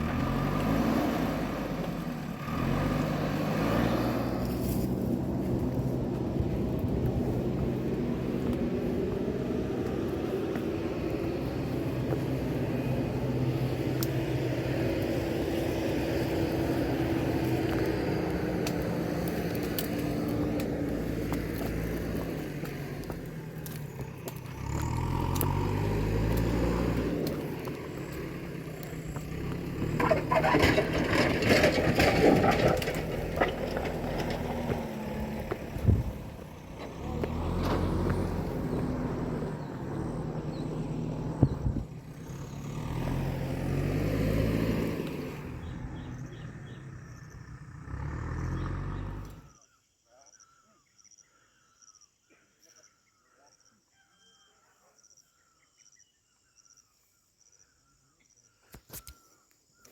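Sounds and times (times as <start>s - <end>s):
vehicle engines running: 0.0s - 49.6s
vehicle revving rumble: 0.0s - 49.6s
loud rattling and scraping: 29.0s - 38.0s.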